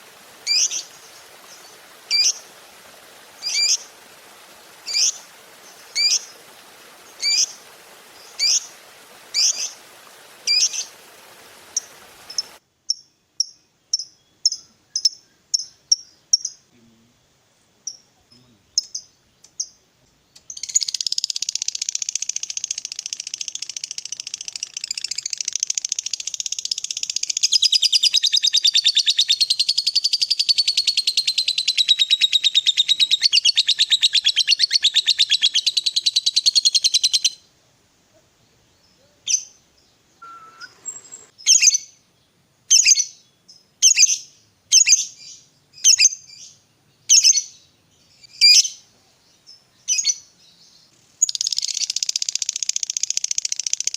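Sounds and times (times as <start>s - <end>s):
lovebird chirping: 0.0s - 16.7s, 20.4s - 37.4s, 38.5s - 42.0s, 42.7s - 53.9s
lovebird rapid chattering trill: 0.1s - 12.6s, 20.5s - 37.3s, 51.2s - 53.9s.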